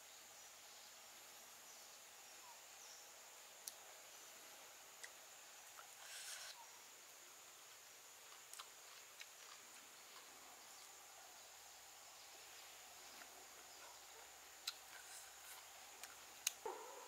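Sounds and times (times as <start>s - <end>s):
faint steady hiss: 0.0s - 17.0s
person biting and chewing food: 8.3s - 10.3s, 14.6s - 16.6s.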